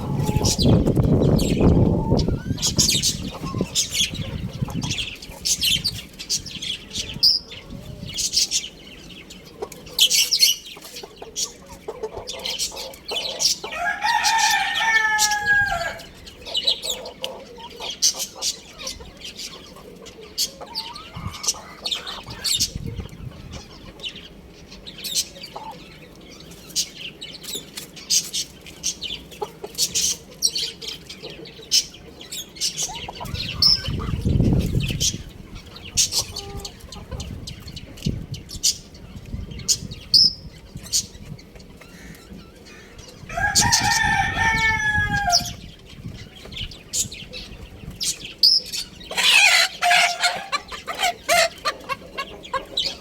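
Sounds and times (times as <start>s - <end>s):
rooster clucking and chirping: 0.0s - 53.0s
rooster crowing: 13.7s - 16.2s, 43.3s - 45.6s.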